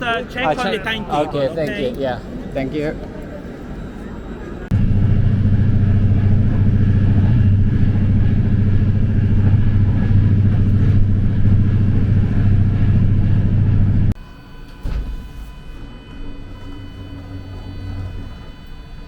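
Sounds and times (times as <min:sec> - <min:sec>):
vehicle engine rumbling: 0:04.7 - 0:14.2.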